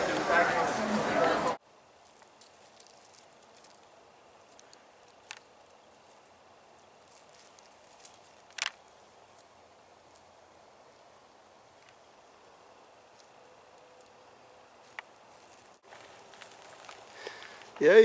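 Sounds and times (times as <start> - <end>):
faint outdoor background: 0.0 - 18.0.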